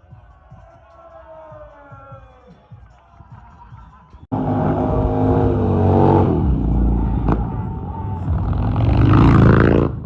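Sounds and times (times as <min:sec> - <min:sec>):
motorcycle engine revving: 0:04.3 - 0:10.0.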